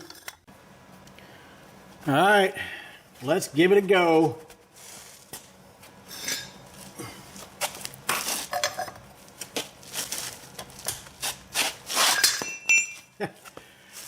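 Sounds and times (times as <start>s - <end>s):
metallic clanks of tools: 12.2s - 13.1s.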